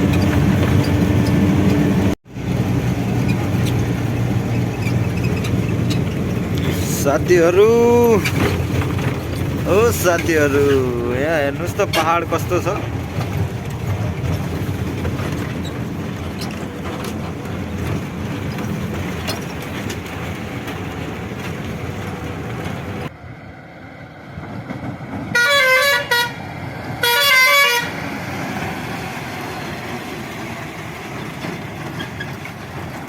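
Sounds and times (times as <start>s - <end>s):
truck running: 0.0s - 33.0s
vehicle horn blasts: 25.3s - 26.4s, 27.0s - 28.0s.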